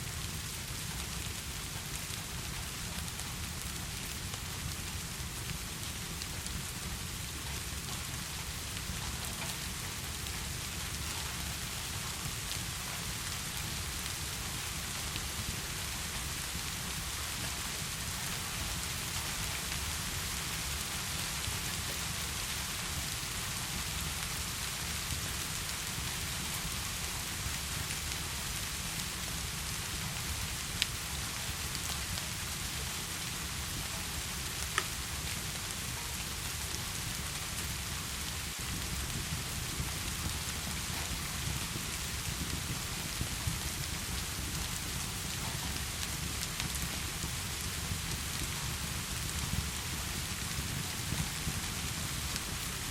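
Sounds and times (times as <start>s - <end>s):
heavy rain hissing: 0.0s - 52.9s
log fire popping: 37.2s - 52.6s.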